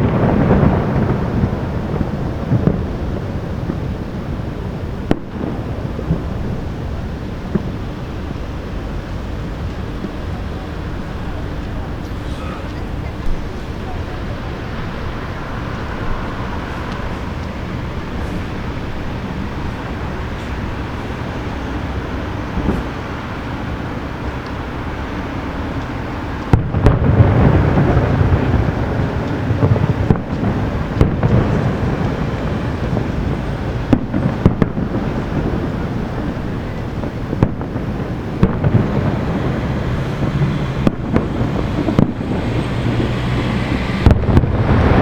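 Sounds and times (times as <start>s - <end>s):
distant fireworks booming: 0.0s - 45.0s.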